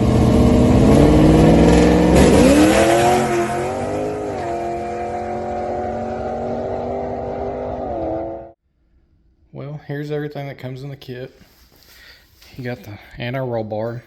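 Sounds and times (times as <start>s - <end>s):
drag car engine accelerating: 0.0s - 8.6s.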